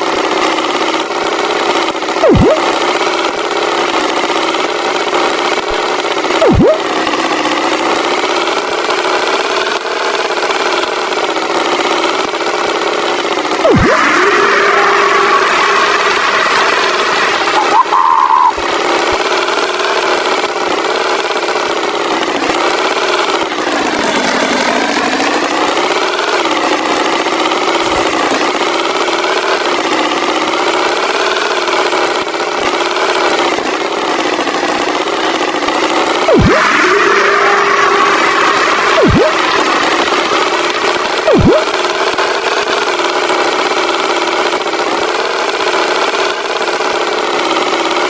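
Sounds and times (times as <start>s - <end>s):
cartoon tractor engine running: 0.0s - 48.0s
brief high tone: 2.2s - 2.7s, 6.4s - 6.9s, 13.6s - 18.6s, 36.3s - 40.4s, 41.3s - 41.7s.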